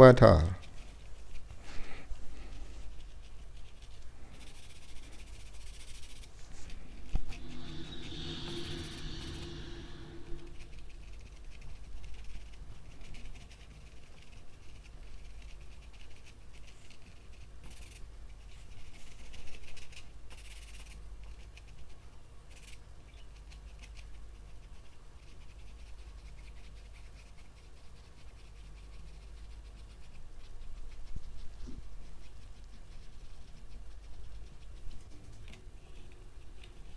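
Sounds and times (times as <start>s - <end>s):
paintbrush scratching on surface: 2.8s - 12.3s
steady low hum: 5.1s - 11.8s.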